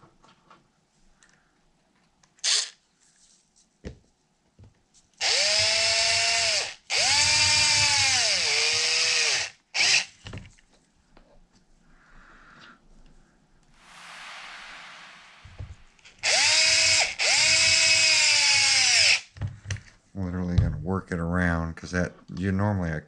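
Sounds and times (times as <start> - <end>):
cordless drill motor whine: 5.2 - 10.1, 16.2 - 19.2.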